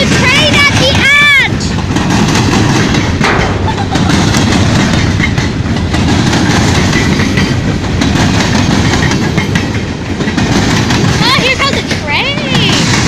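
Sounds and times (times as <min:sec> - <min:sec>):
train wheels clacking on rails: 0:00.0 - 0:13.0.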